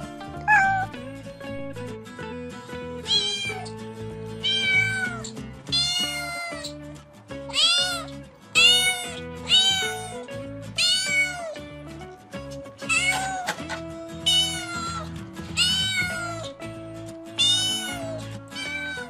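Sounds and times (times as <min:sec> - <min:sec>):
soft background music: 0:00.0 - 0:19.0
cat meowing: 0:00.2 - 0:01.1, 0:03.0 - 0:03.8, 0:04.4 - 0:06.8, 0:07.5 - 0:11.6, 0:12.8 - 0:16.6, 0:17.4 - 0:19.0.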